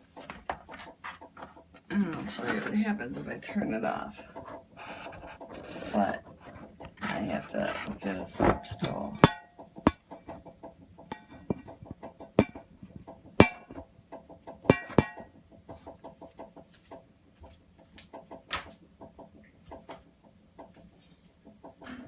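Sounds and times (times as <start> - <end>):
water heater ticking: 5.4 - 21.8.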